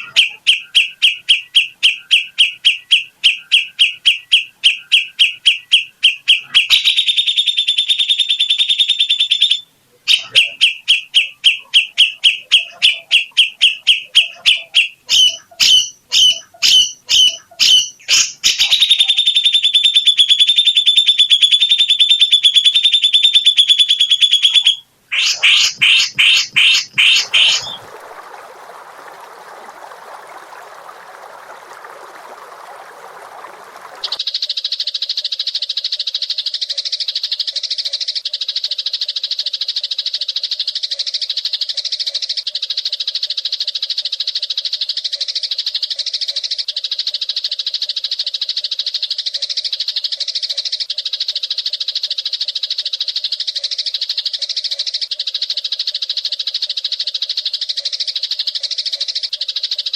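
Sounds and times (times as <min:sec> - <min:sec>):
songbird trilling: 0:00.0 - 0:27.9.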